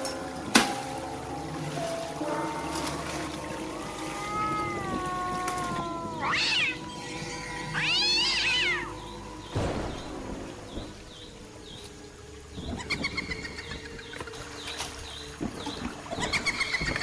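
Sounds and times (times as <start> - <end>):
loud drawn-out animal cries: 3.6 - 9.2.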